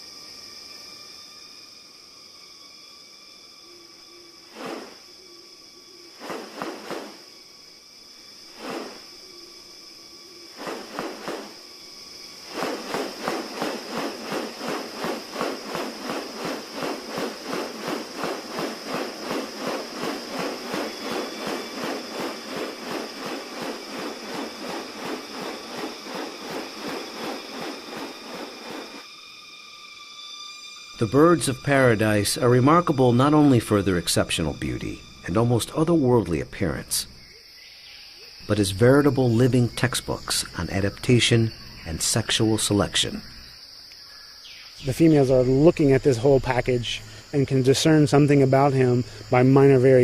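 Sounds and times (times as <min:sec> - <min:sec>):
high insect drone: 0:00.0 - 0:50.0
fast even pulsing: 0:10.6 - 0:11.6, 0:12.5 - 0:29.0.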